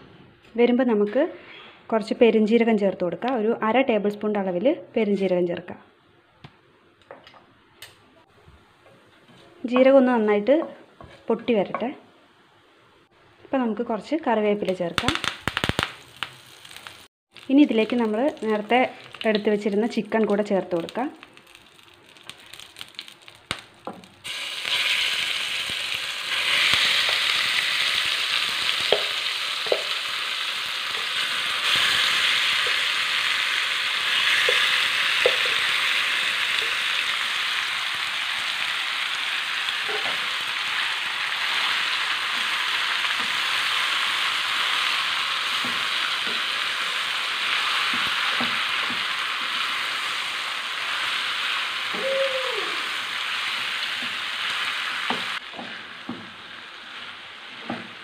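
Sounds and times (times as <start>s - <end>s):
chicken sizzling in oil: 20.7s - 58.0s.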